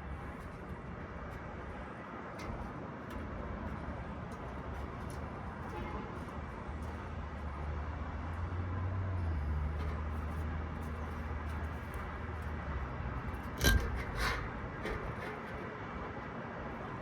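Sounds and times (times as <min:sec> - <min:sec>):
metal clank: 0:13.3 - 0:16.2.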